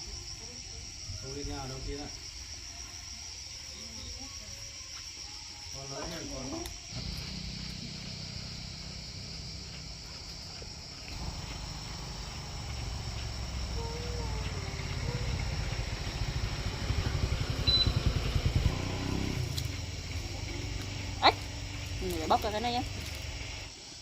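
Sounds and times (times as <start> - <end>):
high insect trill: 0.0 - 24.0
low pulsing engine rumble: 6.9 - 23.7.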